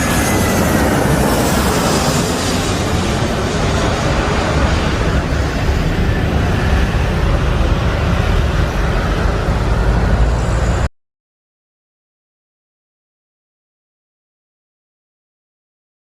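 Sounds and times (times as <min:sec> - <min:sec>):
jet engines roaring: 0:00.0 - 0:10.9.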